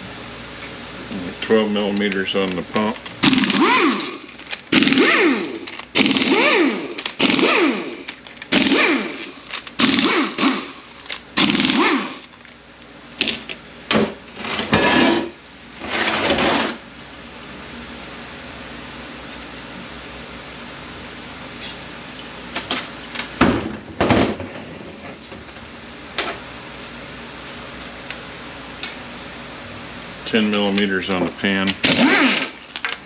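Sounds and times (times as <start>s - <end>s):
power ratchet spinning: 3.1s - 12.5s, 31.8s - 33.0s.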